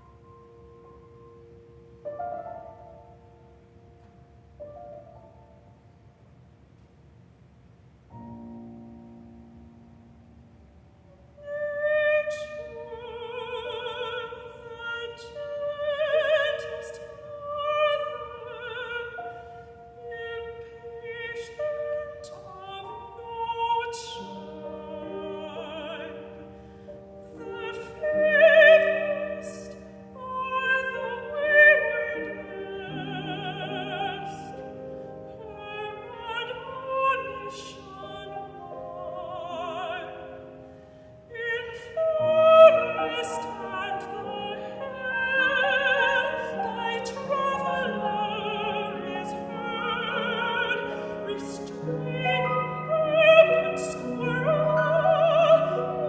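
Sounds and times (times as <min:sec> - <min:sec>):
piano accompaniment: 0:00.0 - 0:06.7, 0:08.0 - 0:56.0
woman singing with vibrato: 0:11.4 - 0:26.6, 0:27.2 - 0:40.6, 0:41.3 - 0:56.0.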